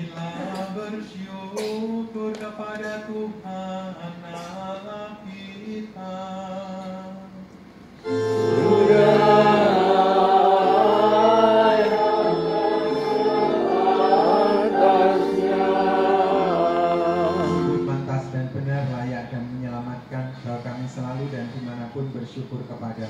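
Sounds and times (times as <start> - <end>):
choir and congregation singing: 8.0 - 18.4
sustained accompanying chords: 8.0 - 18.7.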